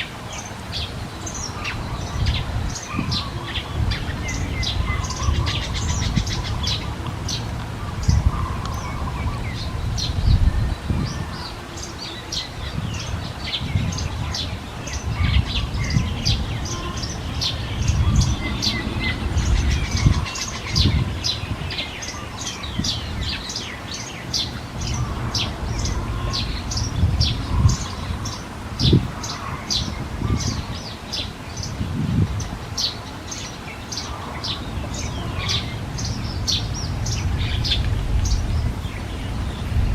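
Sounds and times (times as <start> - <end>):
small birds chirping: 0.0 - 39.9
low rumble with bumps: 34.8 - 39.9.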